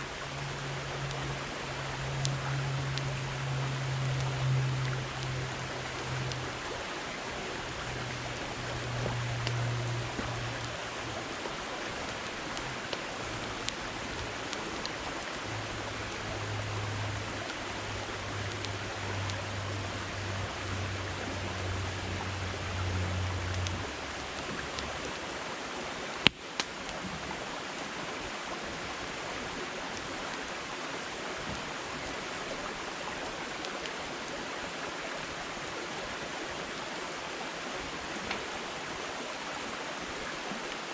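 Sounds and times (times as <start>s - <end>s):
low hum: 0.0s - 25.6s
campfire crackling and popping: 0.0s - 35.2s, 38.1s - 38.8s.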